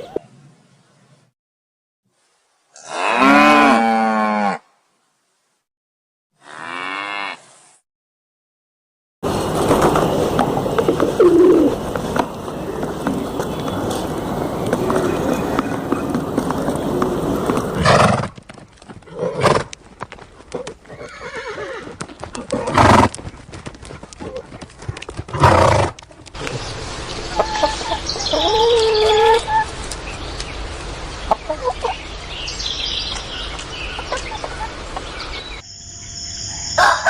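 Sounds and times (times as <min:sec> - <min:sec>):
dense noisy sound: 0:09.2 - 0:17.8
horses neighing: 0:10.8 - 0:19.8, 0:20.4 - 0:23.3, 0:24.2 - 0:26.0.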